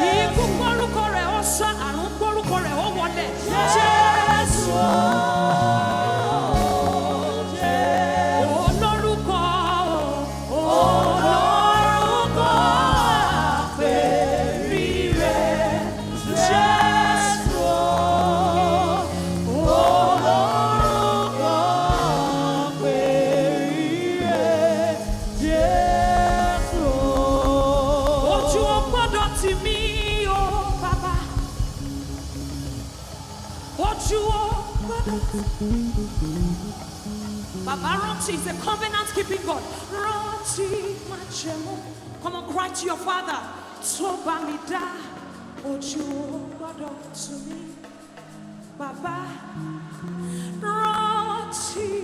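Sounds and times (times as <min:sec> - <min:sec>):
person singing with vibrato: 0:00.0 - 0:32.1
band accompaniment: 0:00.0 - 0:42.5.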